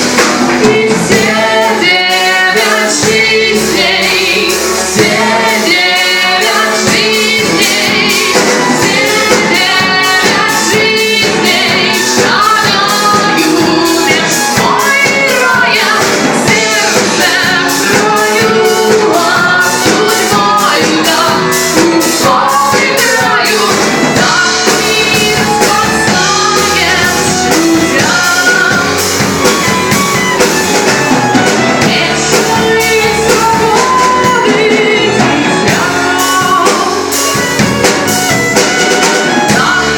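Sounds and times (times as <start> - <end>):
lead singer singing: 0.0 - 39.9
rock band playing: 0.0 - 39.9
steady drum beat: 0.0 - 39.9.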